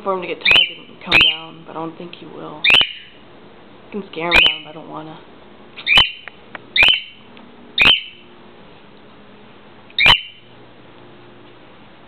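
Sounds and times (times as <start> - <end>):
cockatiel calls: 0.4 - 1.4, 2.6 - 3.2, 4.3 - 4.6, 5.8 - 7.2, 7.8 - 8.2, 10.0 - 10.4.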